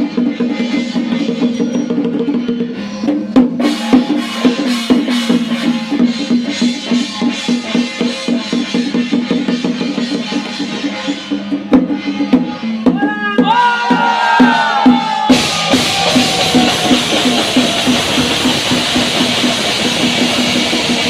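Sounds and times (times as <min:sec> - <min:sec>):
rapid drum strokes: 0:00.0 - 0:21.0
cymbal crash: 0:15.3 - 0:21.0.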